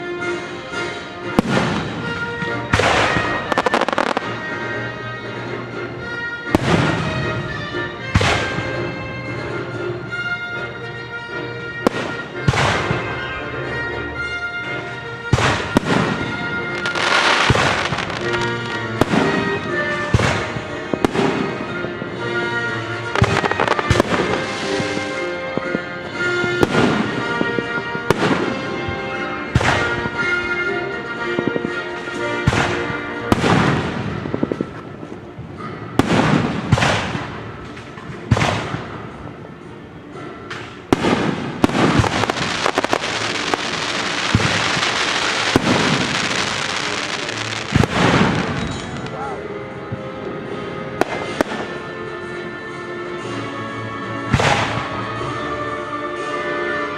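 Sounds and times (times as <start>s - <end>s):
orchestral music: 0.0s - 56.9s
fireworks crackle: 1.3s - 4.8s, 15.3s - 30.6s, 40.5s - 49.4s
fireworks shells bursting: 15.4s - 29.0s, 40.5s - 49.2s.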